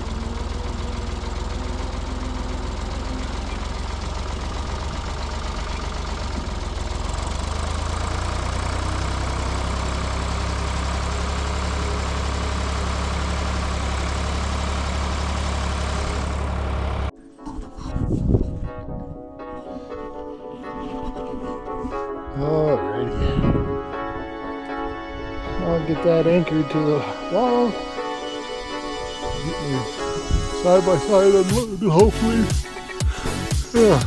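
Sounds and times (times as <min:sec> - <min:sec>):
diesel engine knocking clatter: 0:00.0 - 0:17.1.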